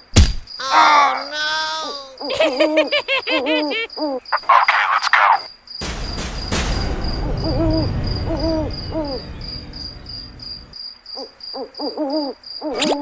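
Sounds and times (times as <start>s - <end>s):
cricket chirping: 0.4s - 13.0s
low rumble: 5.8s - 10.8s
owl hooting: 11.2s - 12.8s.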